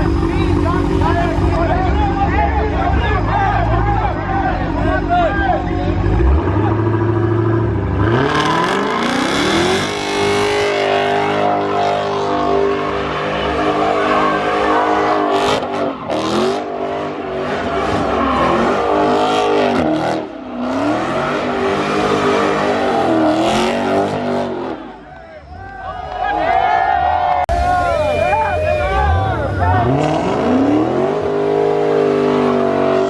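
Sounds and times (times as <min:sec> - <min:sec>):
car engine revving hard: 0:06.0 - 0:24.9, 0:29.0 - 0:33.0.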